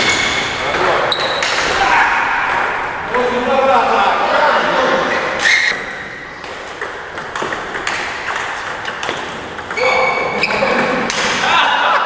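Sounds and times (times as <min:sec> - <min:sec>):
table tennis ball clicking: 0:06.4 - 0:10.1.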